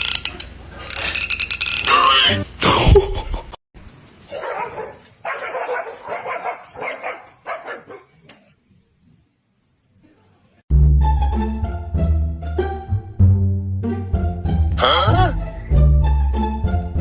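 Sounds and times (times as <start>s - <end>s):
dog barking: 4.3s - 8.2s.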